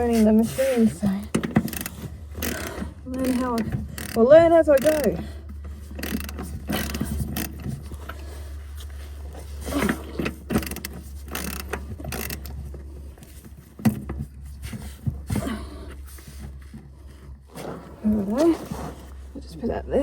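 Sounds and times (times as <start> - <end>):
steady low hum: 0.0 - 20.0
ratchet wrench clicking: 1.4 - 7.6, 10.6 - 12.5.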